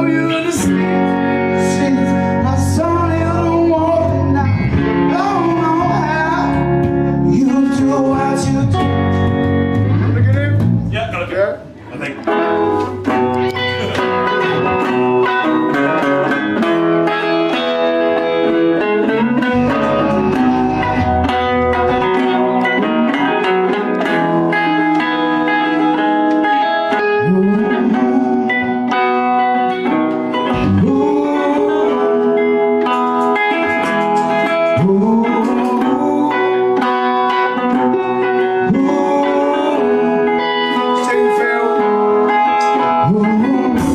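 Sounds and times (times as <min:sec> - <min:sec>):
band playing with guitars: 0:00.0 - 0:43.9
guitar note sliding up: 0:08.9 - 0:35.0.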